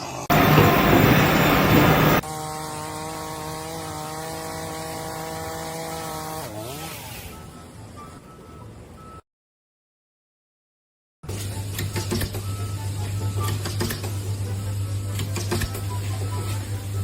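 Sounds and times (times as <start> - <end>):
loud rushing noise: 0.3 - 2.2
machine hum: 0.3 - 2.2.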